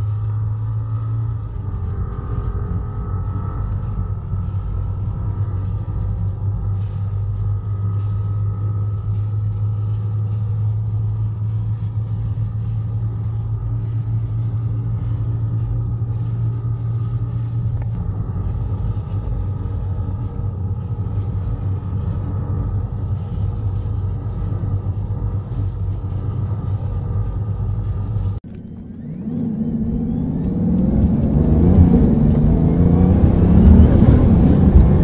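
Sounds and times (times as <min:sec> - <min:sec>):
low engine drone: 0:00.0 - 0:35.0
wind and road noise: 0:00.0 - 0:35.0.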